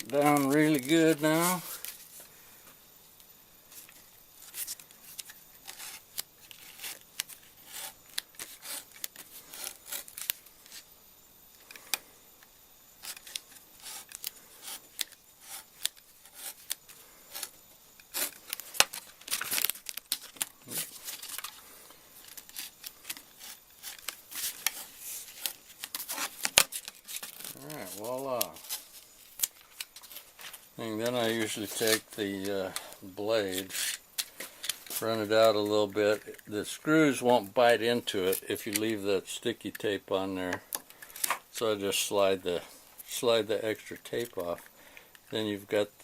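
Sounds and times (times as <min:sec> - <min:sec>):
knife scraping sandpaper: 0:04.4 - 0:10.8, 0:13.0 - 0:18.6, 0:22.3 - 0:29.4, 0:33.5 - 0:34.0.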